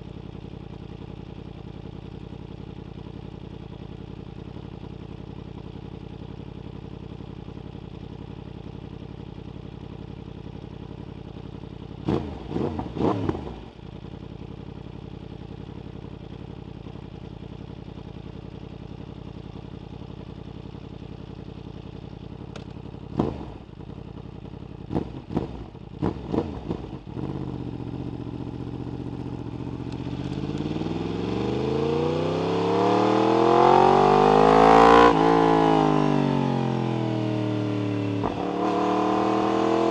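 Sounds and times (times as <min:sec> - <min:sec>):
motorcycle engine idling: 0:00.0 - 0:32.6
motorcycle pulling away: 0:24.8 - 0:39.9
motorcycle throttle blips: 0:29.3 - 0:30.8.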